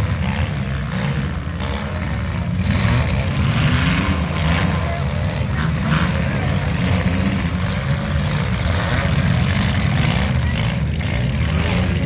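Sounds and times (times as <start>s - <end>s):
several car engines droning: 0.0s - 12.0s.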